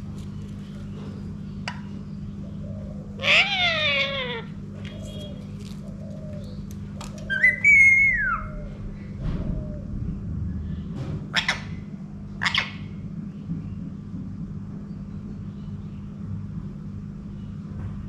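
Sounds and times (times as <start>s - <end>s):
steady low hum: 0.0s - 18.0s
parrot calling: 3.2s - 5.4s, 7.2s - 8.7s, 12.4s - 13.0s.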